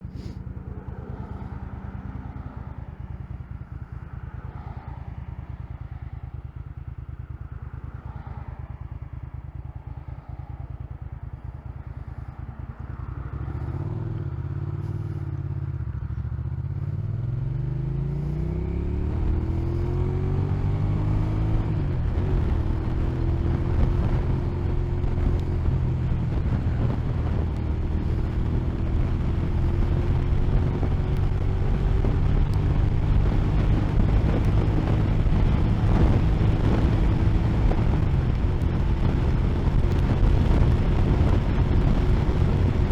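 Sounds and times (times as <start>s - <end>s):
motorcycle engine idling and accelerating: 0.0s - 42.9s.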